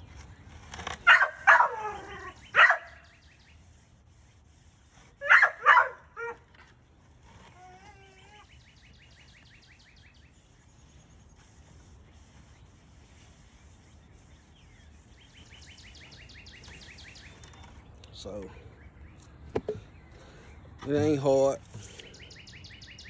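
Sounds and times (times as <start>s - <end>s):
dog barking: 1.1s - 3.0s, 5.2s - 6.4s
dog yipping: 1.1s - 3.0s, 5.2s - 6.4s.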